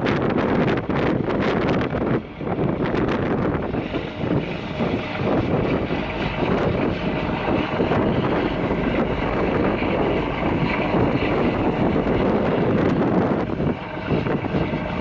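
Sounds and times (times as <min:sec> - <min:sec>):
boat under way: 0:00.0 - 0:15.0
wind buffeting microphone: 0:00.0 - 0:15.0.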